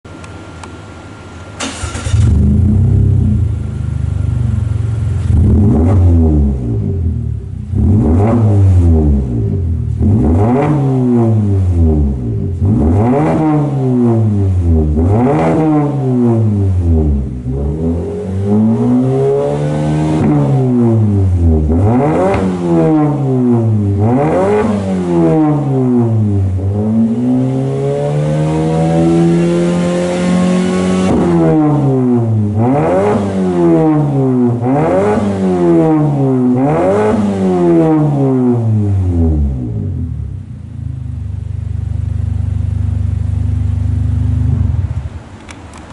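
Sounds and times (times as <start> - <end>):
car engine revving: 1.6 - 45.9.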